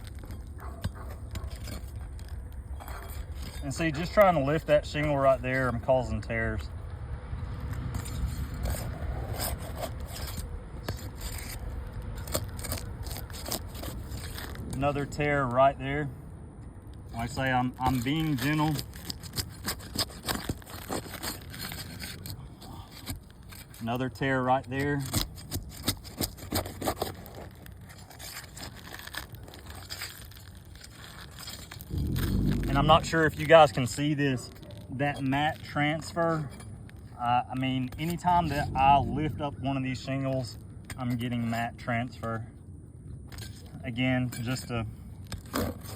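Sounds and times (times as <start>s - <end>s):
roof shingle scraping: 0.0s - 5.9s, 7.9s - 15.2s, 17.2s - 39.5s, 45.3s - 45.9s
shingle tearing crackles: 0.0s - 6.9s, 7.6s - 15.6s, 16.8s - 41.6s, 45.2s - 45.9s.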